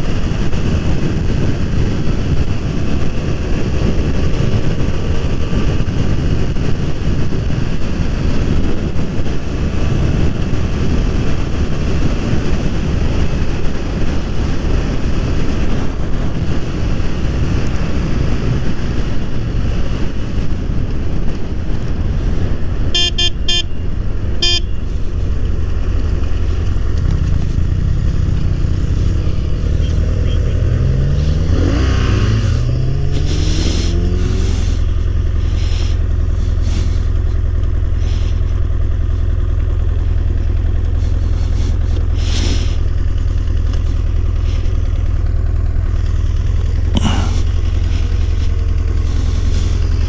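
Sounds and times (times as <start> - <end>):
wind noise on microphone: 0.0 - 39.4
motorcycle engine running: 0.0 - 50.0
vehicle horn beeps: 22.9 - 23.8, 24.4 - 24.9.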